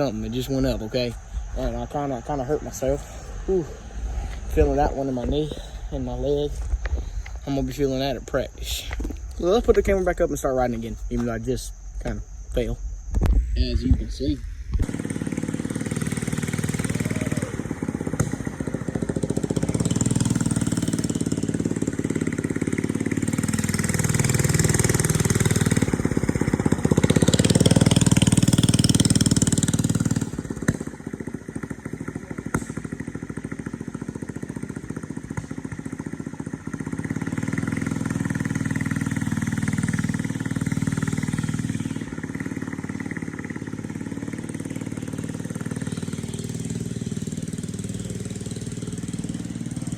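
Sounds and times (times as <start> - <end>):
small engine running: 0.0 - 11.3, 14.8 - 49.9.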